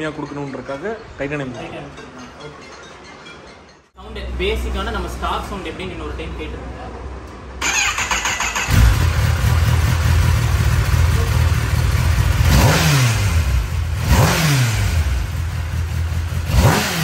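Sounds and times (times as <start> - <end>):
motorcycle engine idling and revving: 7.6 - 17.0.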